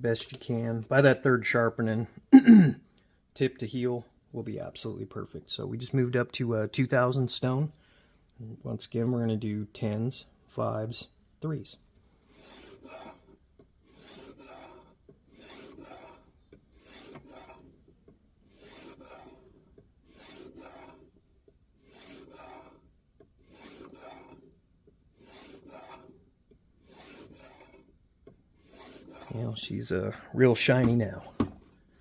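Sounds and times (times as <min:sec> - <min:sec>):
knife scraping on sharpening stone: 0:13.9 - 0:17.7, 0:18.5 - 0:19.5, 0:20.1 - 0:21.1, 0:21.8 - 0:22.8, 0:23.4 - 0:24.4, 0:25.2 - 0:26.1, 0:26.8 - 0:27.9, 0:28.6 - 0:29.4.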